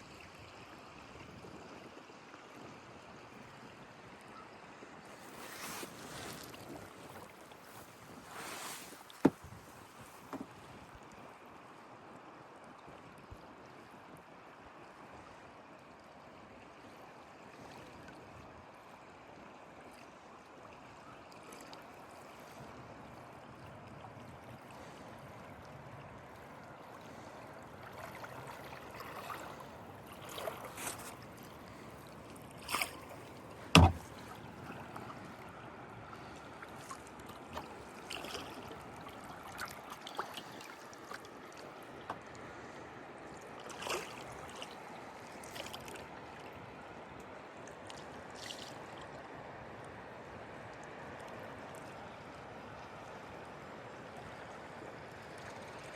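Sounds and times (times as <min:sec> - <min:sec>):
paddle splashes: 0:04.4 - 0:11.2, 0:26.3 - 0:49.2
river water rushing: 0:27.0 - 0:46.7
sharp knock: 0:33.8 - 0:34.1.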